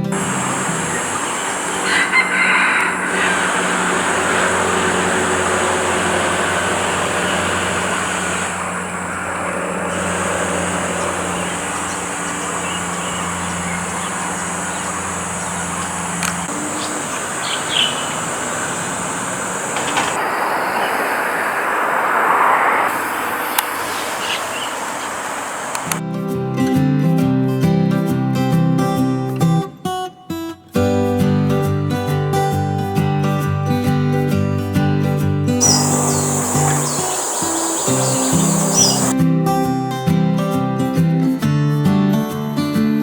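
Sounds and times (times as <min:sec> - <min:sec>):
low engine-like hum: 0:00.0 - 0:26.0, 0:35.6 - 0:39.2
vehicle rumble: 0:00.0 - 0:26.0, 0:35.6 - 0:39.2.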